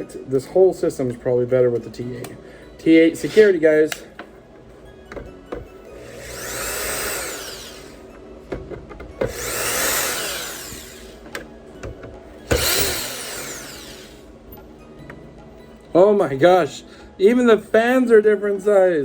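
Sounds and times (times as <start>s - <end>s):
electric screwdriver motor whine: 6.0s - 8.0s, 9.2s - 11.2s, 12.5s - 14.3s.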